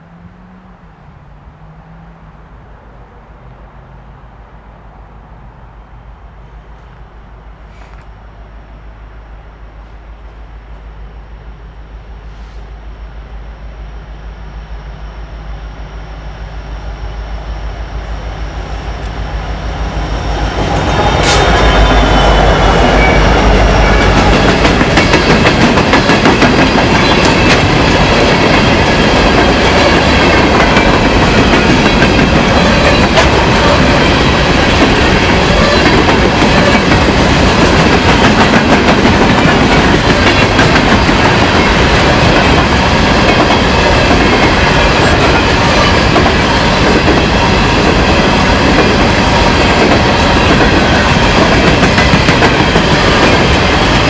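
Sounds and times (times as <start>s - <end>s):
train wheels clattering: 20.2s - 54.0s.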